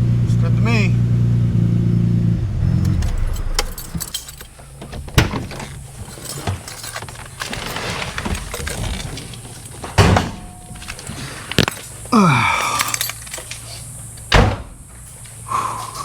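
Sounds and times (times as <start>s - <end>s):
short falling whine: 1.6s - 4.5s
sharp thunks: 2.4s - 6.7s, 7.7s - 11.8s, 14.3s - 15.0s
objects clattering: 2.9s - 14.0s.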